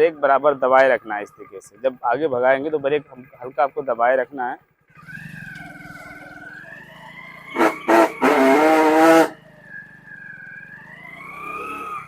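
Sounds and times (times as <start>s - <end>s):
motorcycle engine running: 4.6s - 12.0s
motorcycle brake squealing: 7.6s - 9.4s.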